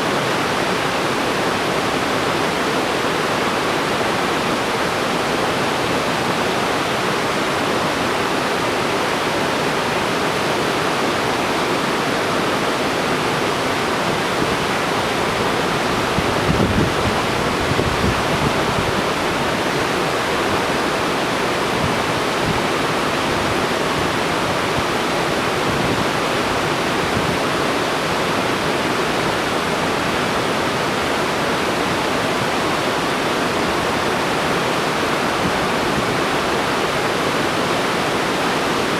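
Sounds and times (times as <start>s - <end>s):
waterfall rushing: 0.0s - 38.9s
wind on microphone: 14.0s - 20.8s, 21.6s - 27.8s.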